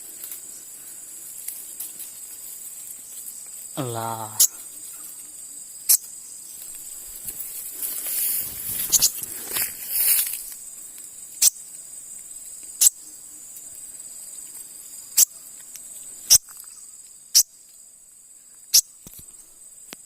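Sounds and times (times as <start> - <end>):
rustling: 0.0 - 3.8, 6.5 - 11.1
insects trilling: 0.0 - 20.0.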